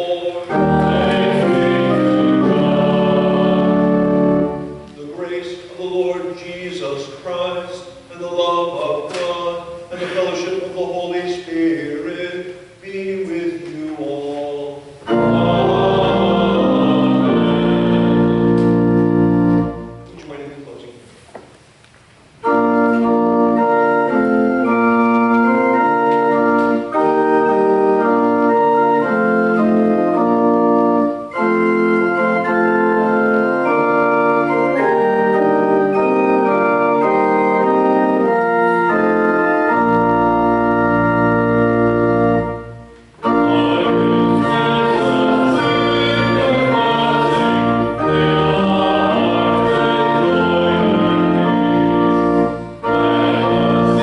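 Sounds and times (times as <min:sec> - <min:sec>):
church organ playing chords: 0:00.0 - 0:20.7, 0:22.4 - 0:54.0.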